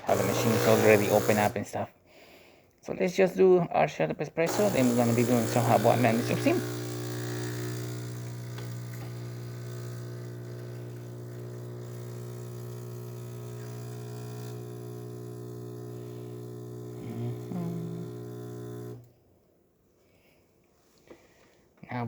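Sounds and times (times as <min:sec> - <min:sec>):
espresso machine humming: 0:00.0 - 0:01.6, 0:04.5 - 0:19.1.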